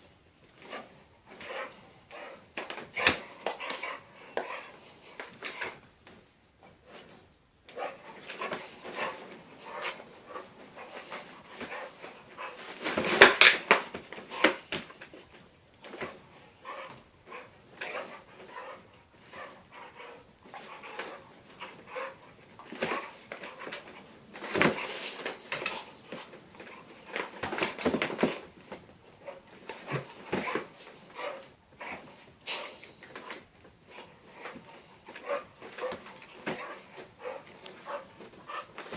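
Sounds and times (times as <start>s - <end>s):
pets scuffling and knocking: 6.9s - 38.9s
dog noises: 7.7s - 28.5s, 29.2s - 38.9s.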